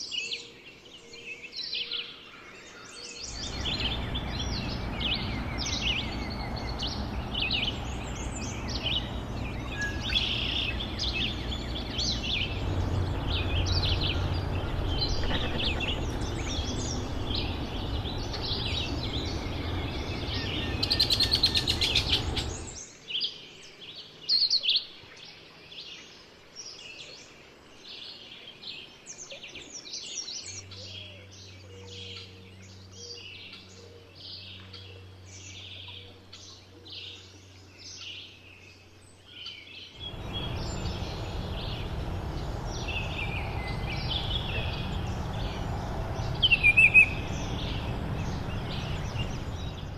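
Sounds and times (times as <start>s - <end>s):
songbirds chirping and singing: 0.0s - 49.9s
steady rushing noise: 3.3s - 22.8s, 40.0s - 49.9s.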